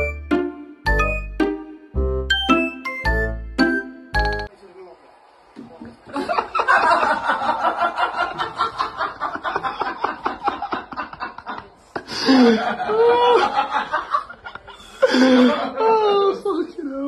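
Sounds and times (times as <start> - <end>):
person laughing breathily: 11.8 - 13.6, 14.5 - 16.1.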